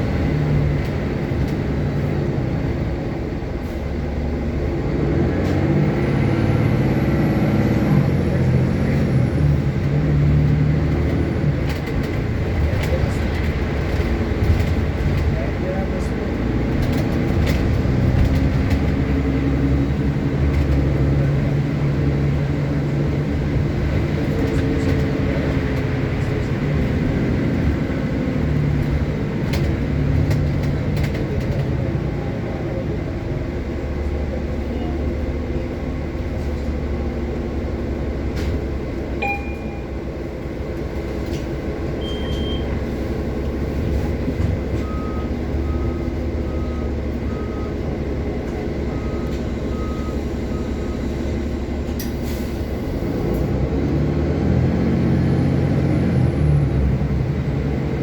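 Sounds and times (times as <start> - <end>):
bus engine drone: 0.0 - 58.0
short beeps: 39.2 - 40.0, 42.0 - 42.8.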